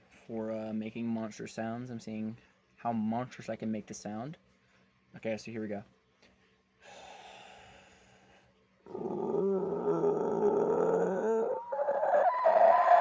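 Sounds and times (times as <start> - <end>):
faint breath: 6.3 - 8.6
person growling: 8.9 - 13.0.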